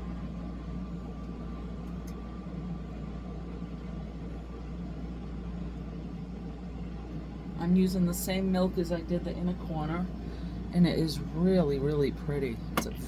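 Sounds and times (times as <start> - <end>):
low hum and hiss: 0.0 - 13.0.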